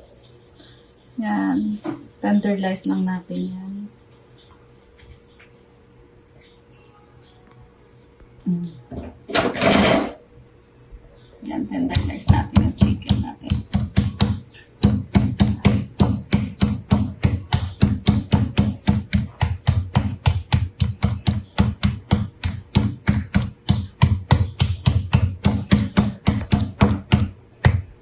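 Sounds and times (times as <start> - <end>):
meat pounded on cutting board: 11.9 - 28.0.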